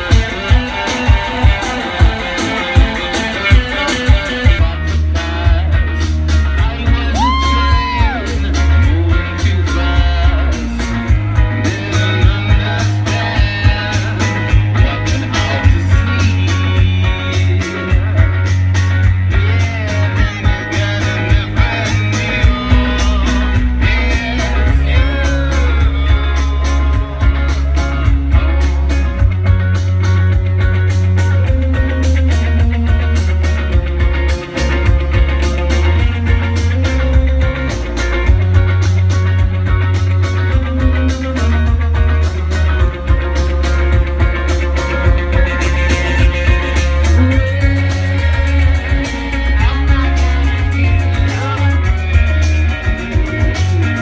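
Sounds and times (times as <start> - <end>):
person singing: 0.0 - 29.3, 43.3 - 54.0
electric guitars: 0.0 - 54.0
heavy bass and drums: 0.0 - 54.0.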